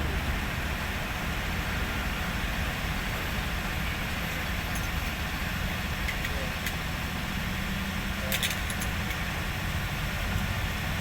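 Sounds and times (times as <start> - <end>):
truck diesel engine running: 0.0 - 6.1.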